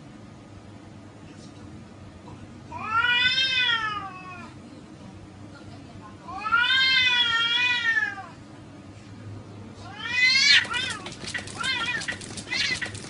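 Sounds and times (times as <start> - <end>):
cat meowing: 2.7 - 4.5, 6.3 - 8.4, 9.8 - 13.0.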